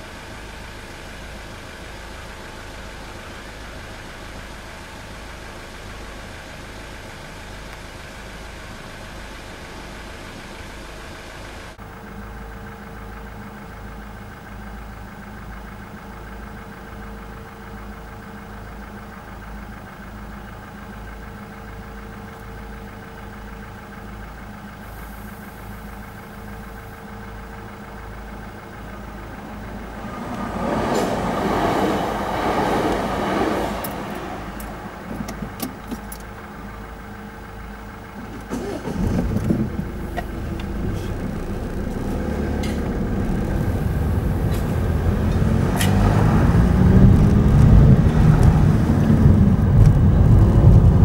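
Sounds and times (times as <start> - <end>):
steady low hum: 4.4 - 51.0
electric train passing: 28.7 - 35.9, 40.4 - 47.0.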